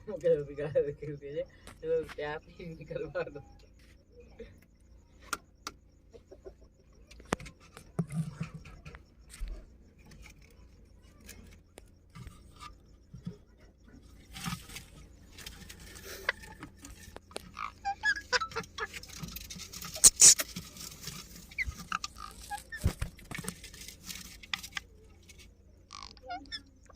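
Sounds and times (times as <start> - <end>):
sharp clicks and scratches: 5.1 - 26.9
parakeet soft calls: 19.9 - 20.6, 25.9 - 26.9.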